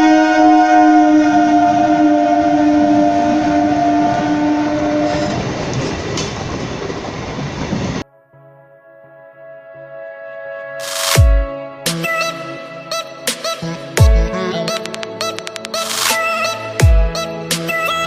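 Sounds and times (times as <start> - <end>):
train horn blast: 0.0 - 5.6
train rumbling on rails: 0.0 - 8.0
electronic music: 8.4 - 18.0.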